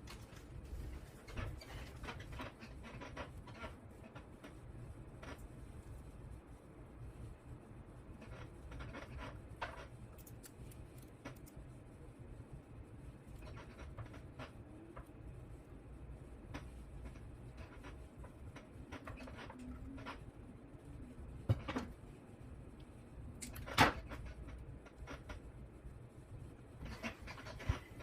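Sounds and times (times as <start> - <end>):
low steady hum: 0.0 - 28.0
small parts clicking and tapping: 9.6 - 11.6.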